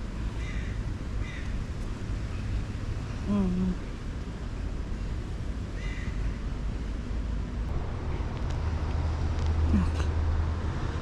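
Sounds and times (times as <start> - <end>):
motor vehicle rumble: 0.0 - 11.0.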